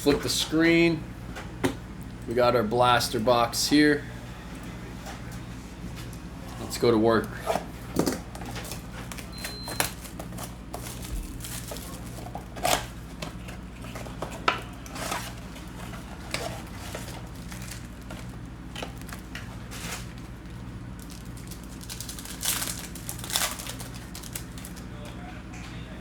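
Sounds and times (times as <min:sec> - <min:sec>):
low steady hum: 0:00.0 - 0:26.0
wrappers tearing and crinkling: 0:08.0 - 0:24.9.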